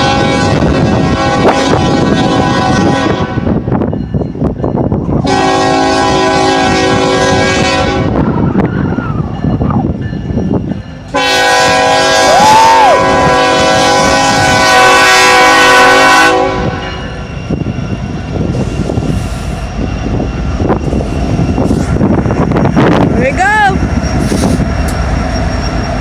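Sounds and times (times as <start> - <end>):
locomotive air horn: 0.0 - 3.6, 5.2 - 8.3, 11.1 - 16.9
train rumbling: 0.0 - 26.0.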